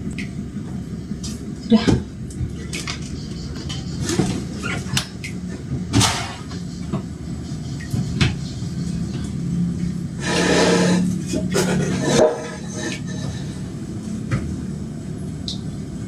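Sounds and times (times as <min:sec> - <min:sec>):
washing machine humming: 0:00.0 - 0:16.0
rushing noise: 0:10.0 - 0:14.0.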